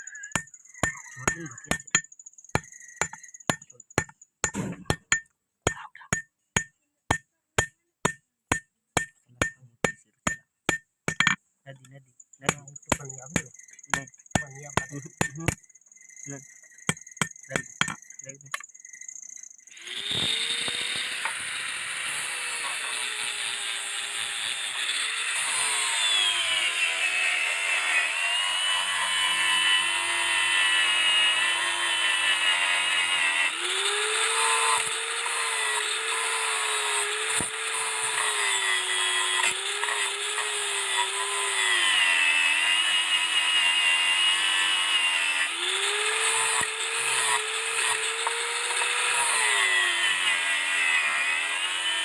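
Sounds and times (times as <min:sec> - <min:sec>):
electric power tool running: 0:19.7 - 0:52.0.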